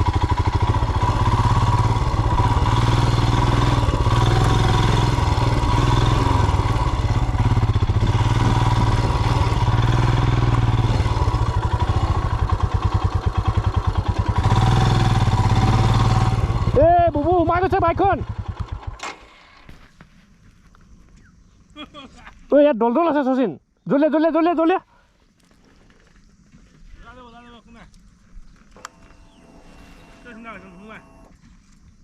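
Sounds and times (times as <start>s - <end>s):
motorcycle engine revving: 0.0s - 19.8s.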